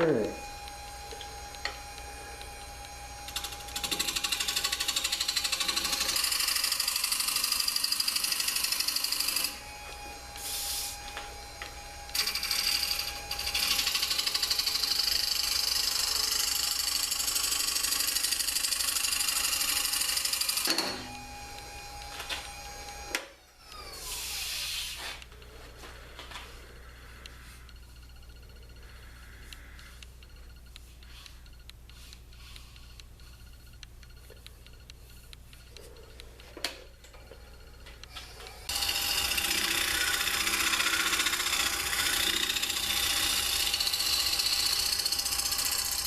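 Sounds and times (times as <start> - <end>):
wood lathe tool hissing: 0.0 - 25.2, 38.2 - 46.0
lathe motor hum: 0.0 - 30.6, 37.1 - 46.0.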